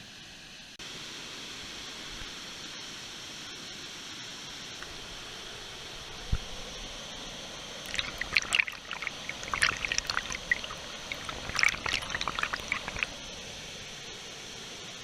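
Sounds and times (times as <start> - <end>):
water splashing and trickling: 7.8 - 13.4.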